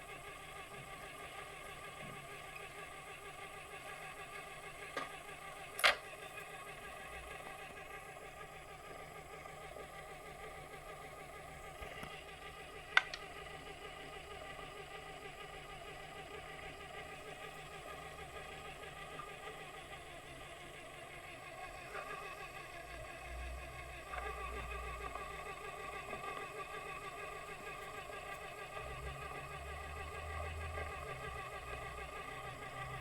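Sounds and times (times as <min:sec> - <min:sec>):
lathe running with machine hum: 0:00.0 - 0:33.0
sharp clicks or knocks: 0:05.8 - 0:06.0, 0:13.0 - 0:13.2.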